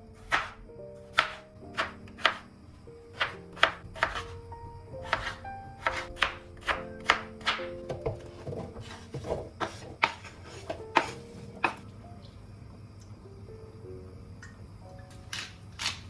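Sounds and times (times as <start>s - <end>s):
soft background music: 0.0s - 16.0s
knife chopping on cutting board: 0.2s - 2.4s, 3.1s - 4.4s, 5.0s - 11.8s.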